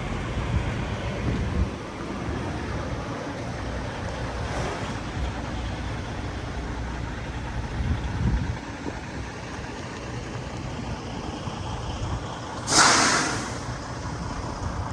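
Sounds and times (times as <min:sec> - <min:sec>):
wind rumbling on microphone: 0:00.0 - 0:09.8
van engine idling: 0:00.0 - 0:14.9.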